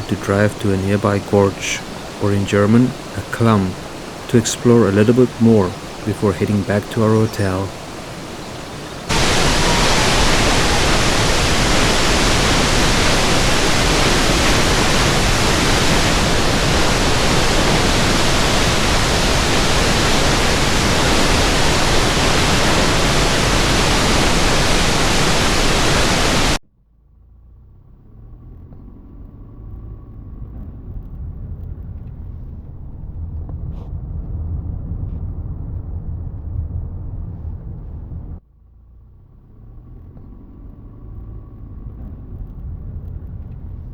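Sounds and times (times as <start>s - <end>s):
car driving rumble: 0.0s - 26.6s, 28.2s - 38.4s
waterfall rushing: 0.0s - 26.6s.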